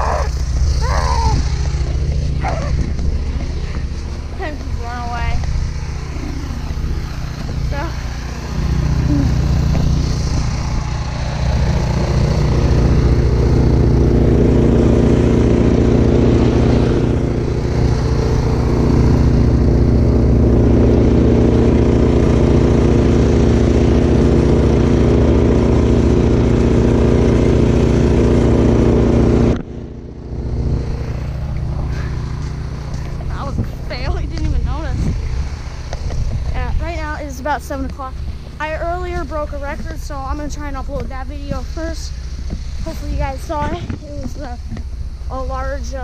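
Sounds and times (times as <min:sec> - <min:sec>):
snowblower engine running: 0:00.0 - 0:46.0.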